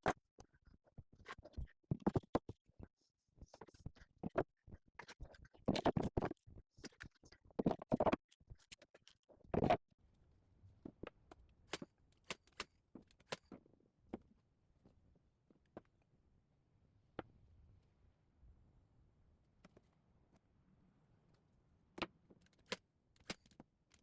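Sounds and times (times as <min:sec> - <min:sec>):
sharp clicks: 0:11.7 - 0:13.5, 0:22.5 - 0:24.0.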